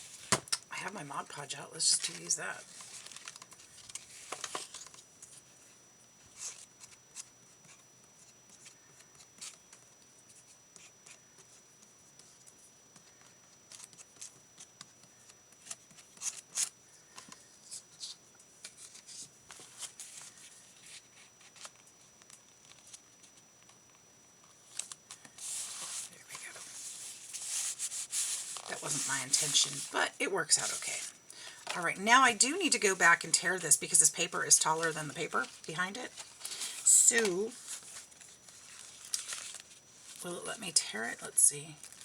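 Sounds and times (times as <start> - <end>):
paper rustling and tapping: 2.8 - 5.0.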